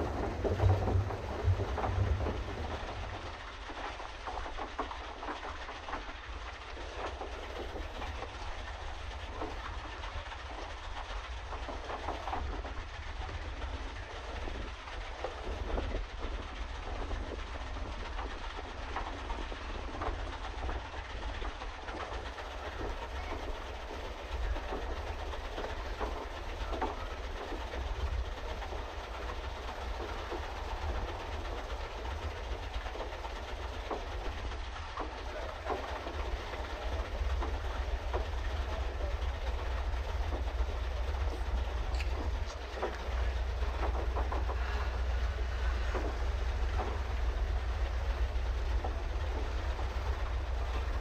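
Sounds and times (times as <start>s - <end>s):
low rumble: 0.0s - 21.6s, 22.5s - 51.0s
paddle wheel churning water: 0.0s - 51.0s.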